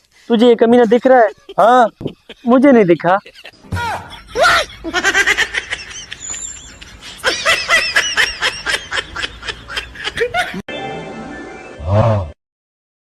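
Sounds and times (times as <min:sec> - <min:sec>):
high-pitched laughter: 0:00.8 - 0:10.6.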